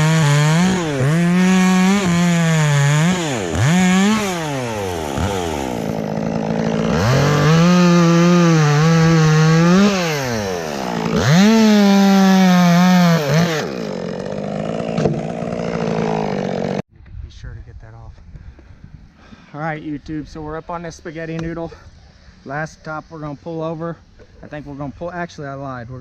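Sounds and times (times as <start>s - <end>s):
chainsaw cutting wood: 0.0s - 16.8s.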